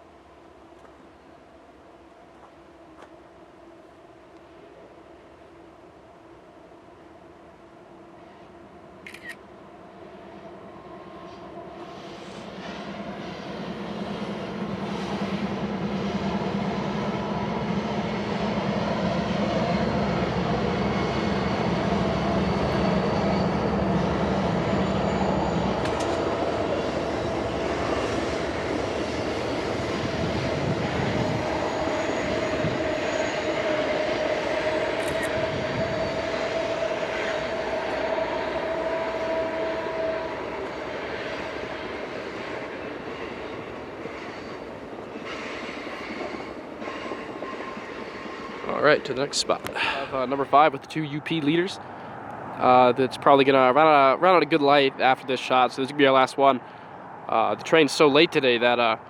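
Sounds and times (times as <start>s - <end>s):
diesel locomotive engine drone: 0.0s - 59.0s
train rolling past: 0.0s - 59.0s
held whine: 19.4s - 51.6s.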